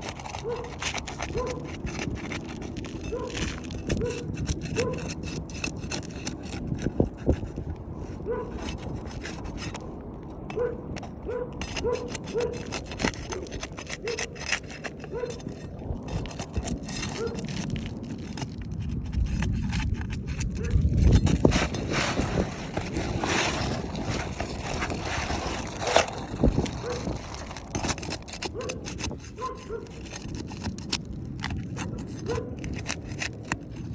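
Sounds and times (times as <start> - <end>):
roof shingles being pried loose: 0.0 - 33.9
wind rumbling on microphone: 0.0 - 33.9.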